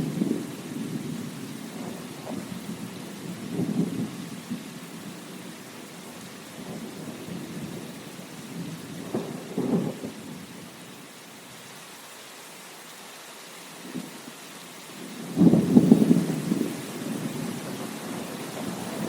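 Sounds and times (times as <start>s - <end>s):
thunder rumbling: 0.0s - 5.5s, 6.5s - 10.5s, 15.0s - 19.0s
rain hissing: 0.0s - 19.0s.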